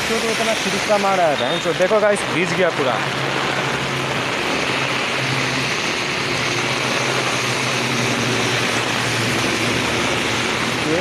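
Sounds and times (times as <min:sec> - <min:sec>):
heavy rain on road water: 0:00.0 - 0:11.0.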